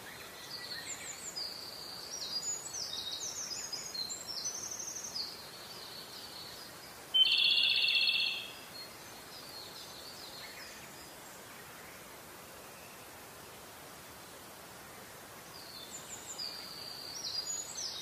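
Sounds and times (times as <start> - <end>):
steady hiss: 0.0 - 18.0
high-pitched bird-like chirps: 7.2 - 8.5.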